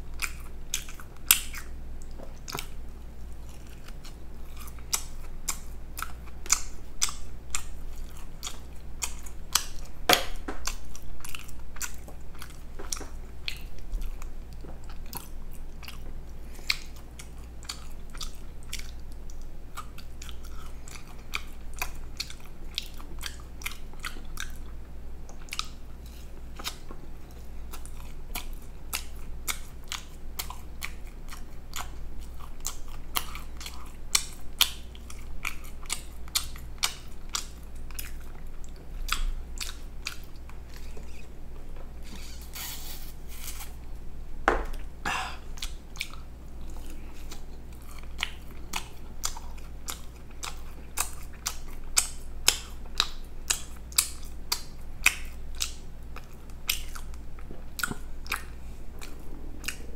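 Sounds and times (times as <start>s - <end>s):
person chewing and biting food: 0.0s - 59.9s
mouth clicks and crunches: 0.2s - 43.9s.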